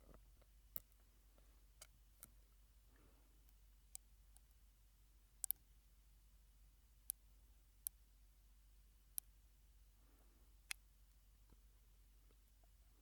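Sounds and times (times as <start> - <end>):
faint breathy sound: 2.8 - 3.5, 9.9 - 10.6.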